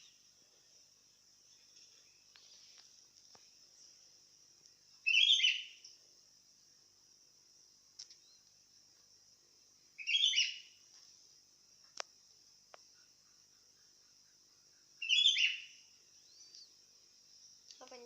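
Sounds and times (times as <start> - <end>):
bulbul singing chirpy phrases: 17.8 - 18.0.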